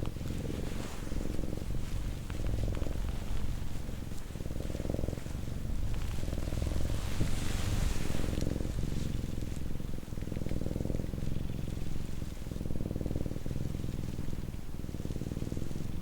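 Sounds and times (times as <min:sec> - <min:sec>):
cat purring: 0:00.0 - 0:16.0
fur rubbing hiss: 0:00.0 - 0:16.0.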